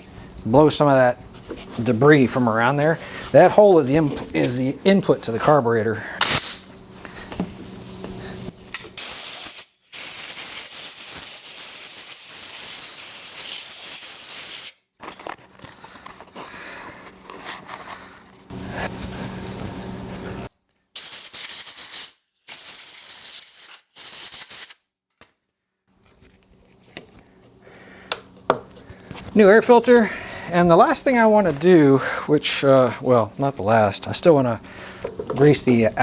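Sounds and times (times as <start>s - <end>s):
compressed air hissing blasts: 6.2s - 14.8s, 18.5s - 24.8s, 34.6s - 36.0s.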